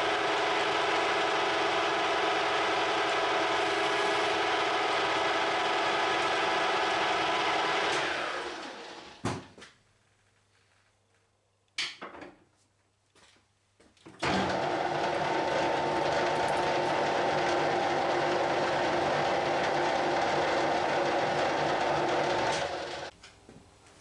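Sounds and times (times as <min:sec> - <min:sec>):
steady machine whirr: 0:00.0 - 0:09.1, 0:14.2 - 0:23.1
lathe motor running down: 0:00.0 - 0:09.2, 0:14.2 - 0:23.1.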